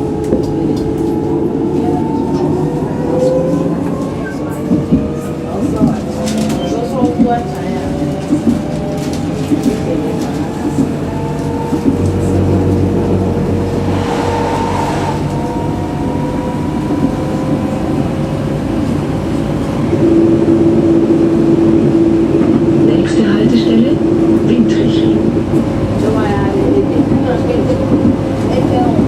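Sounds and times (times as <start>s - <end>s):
wheels rumbling on rails: 0.0s - 29.0s
electric traction motors whining: 0.9s - 26.8s
strong steady tone: 11.2s - 25.6s.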